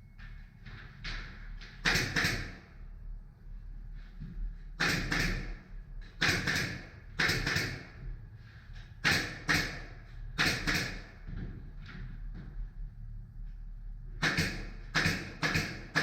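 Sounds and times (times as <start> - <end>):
nail gun firing into wood: 1.8 - 2.6, 4.8 - 5.6, 6.2 - 7.9, 9.0 - 11.1, 14.2 - 16.0.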